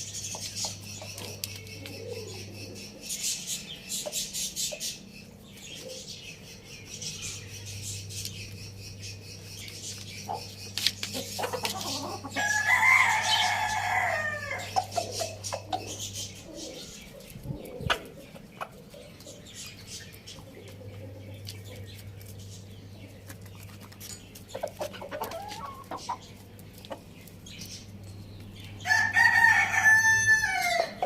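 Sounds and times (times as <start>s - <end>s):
steady low hum: 0.0s - 28.9s
rooster crowing: 12.4s - 14.8s, 28.8s - 31.0s.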